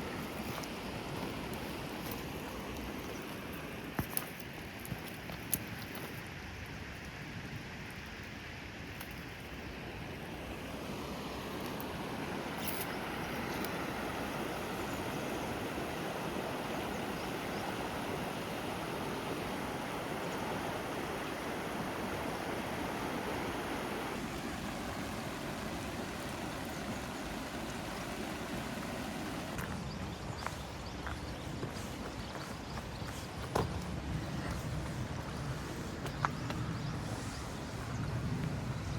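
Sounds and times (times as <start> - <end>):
water rushing: 0.0 - 29.9.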